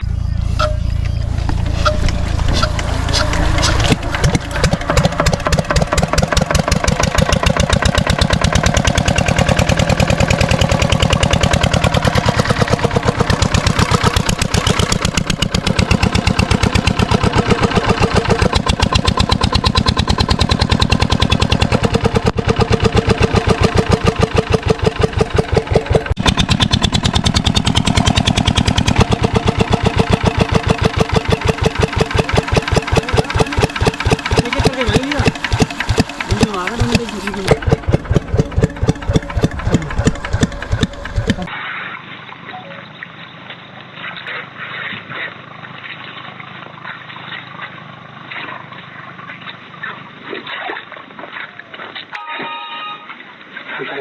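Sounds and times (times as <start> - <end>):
diesel engine running: 0.0 - 41.6.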